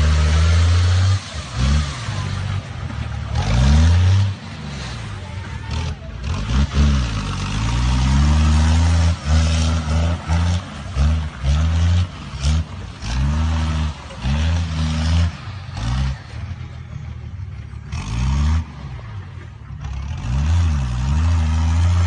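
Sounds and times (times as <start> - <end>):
diesel truck engine revving: 0.0 - 22.0.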